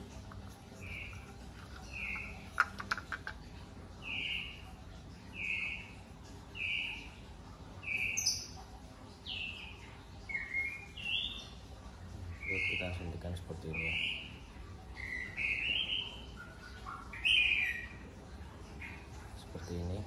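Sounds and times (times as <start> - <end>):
bird chirping: 0.0 - 7.2, 7.8 - 8.6, 12.3 - 20.0.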